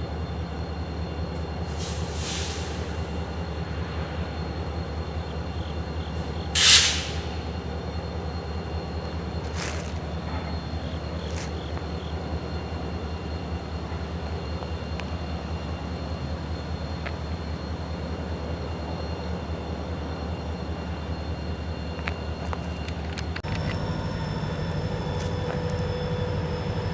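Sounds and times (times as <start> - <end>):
diesel locomotive droning: 0.0 - 26.9
air hiss: 1.7 - 2.9, 6.6 - 7.3.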